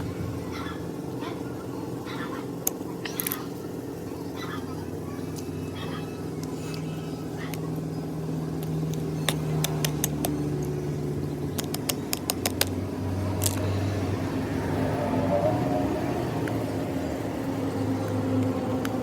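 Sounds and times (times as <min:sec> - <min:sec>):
truck diesel engine running: 0:00.0 - 0:19.0
sharp metallic clicks: 0:02.6 - 0:03.6, 0:08.5 - 0:13.8.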